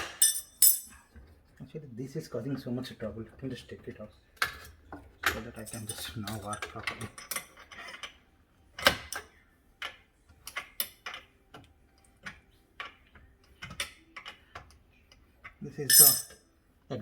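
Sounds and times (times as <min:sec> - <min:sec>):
tools and metal parts clicking: 0:00.0 - 0:01.0, 0:04.4 - 0:08.2, 0:08.8 - 0:14.8, 0:15.4 - 0:16.4.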